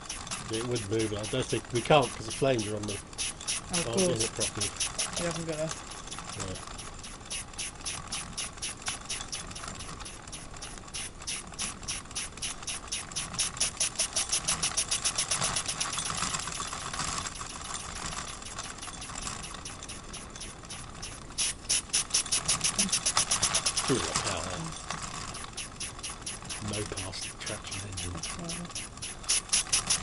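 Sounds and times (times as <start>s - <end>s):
steam escaping: 0.0s - 5.3s, 21.2s - 24.7s
toy steam engine chuffing: 0.0s - 30.0s.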